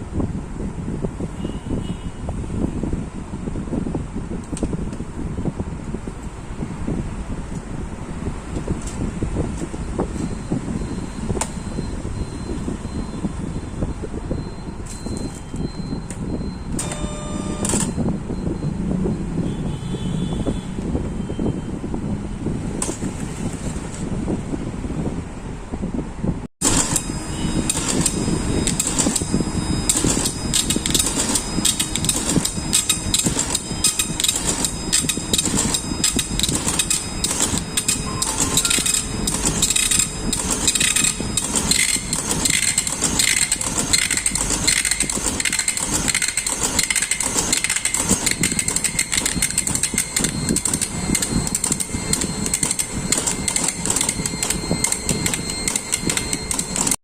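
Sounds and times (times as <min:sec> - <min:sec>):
dot-matrix printer rattling: 0:26.6 - 0:57.0.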